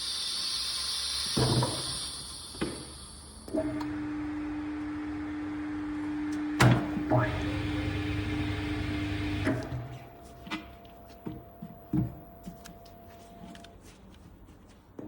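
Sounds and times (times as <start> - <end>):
electric motor hum: 3.6 - 13.0.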